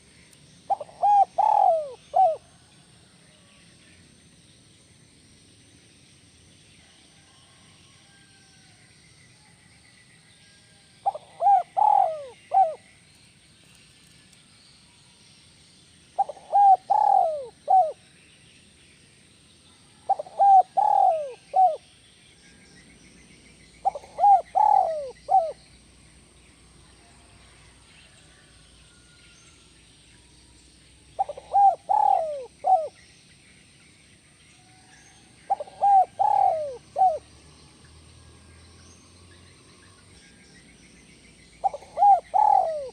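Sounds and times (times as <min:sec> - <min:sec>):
dove cooing: 0:00.7 - 0:02.7, 0:11.0 - 0:12.9, 0:16.2 - 0:18.0, 0:20.1 - 0:21.8, 0:23.8 - 0:25.6, 0:31.2 - 0:33.0, 0:35.5 - 0:37.3, 0:41.6 - 0:42.9.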